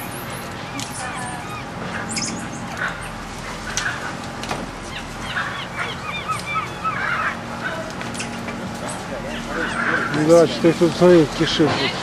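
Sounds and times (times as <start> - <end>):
high arching animal chirps: 0.0 - 2.7, 4.8 - 8.3.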